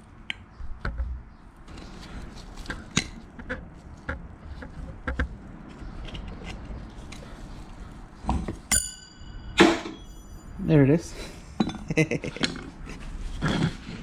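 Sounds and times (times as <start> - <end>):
sharp ringing metallic clink: 8.7 - 10.7.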